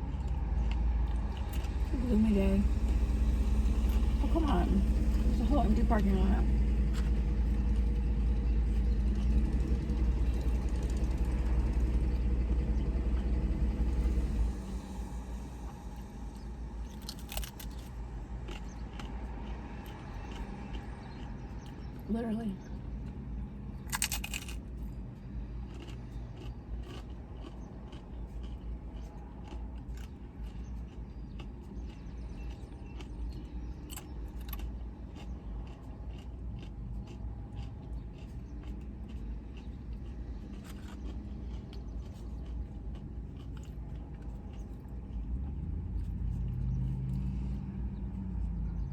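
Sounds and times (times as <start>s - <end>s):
car engine running from inside: 0.0s - 19.1s, 39.6s - 48.9s
steady low hum: 0.0s - 48.9s.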